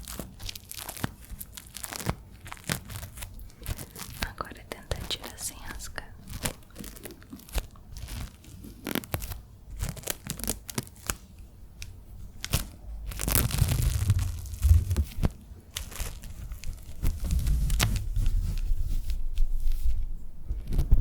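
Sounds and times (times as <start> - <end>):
low rumble: 12.7 - 21.0.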